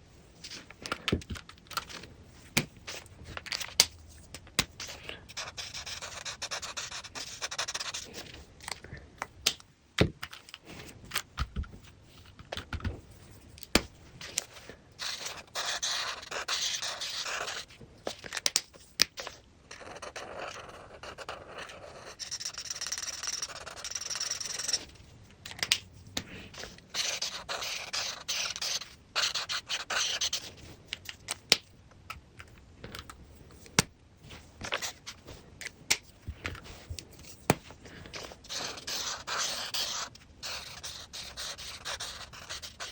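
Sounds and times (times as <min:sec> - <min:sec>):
coloring strokes scratching paper: 0:04.8 - 0:08.4, 0:14.4 - 0:17.7, 0:19.7 - 0:25.0, 0:26.3 - 0:30.8, 0:37.9 - 0:42.9.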